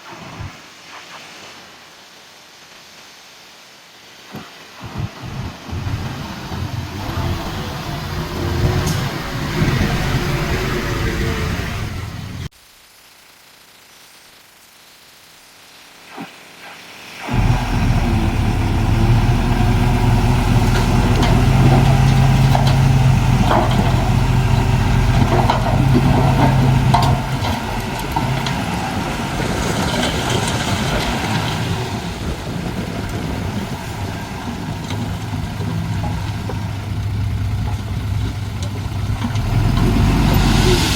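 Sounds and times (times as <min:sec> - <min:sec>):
heavy machinery diesel engine: 0:05.1 - 0:12.5, 0:17.3 - 0:40.9
metal clanks: 0:20.4 - 0:28.8.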